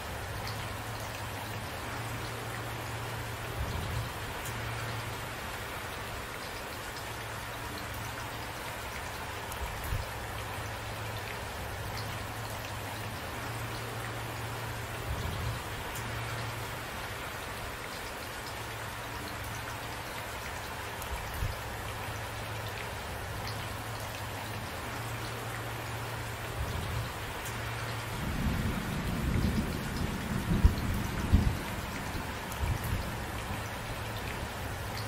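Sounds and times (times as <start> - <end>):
steady rain: 0.0 - 35.0
thunder rumbling and cracking: 28.2 - 33.0.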